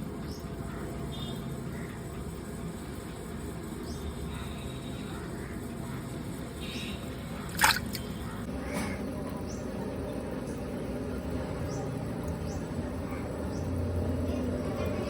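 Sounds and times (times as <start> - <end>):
low steady background noise: 0.0 - 15.0
water splashing: 7.4 - 8.2
water dripping: 7.5 - 8.2.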